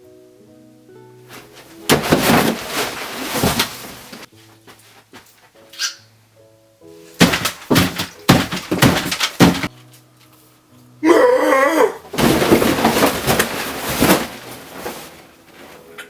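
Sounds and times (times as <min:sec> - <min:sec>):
faint background music: 0:00.0 - 0:16.0
clattering: 0:01.3 - 0:04.3, 0:07.2 - 0:09.8, 0:12.1 - 0:16.0
crashing and crunching: 0:01.3 - 0:05.6, 0:07.1 - 0:09.9, 0:12.1 - 0:16.0.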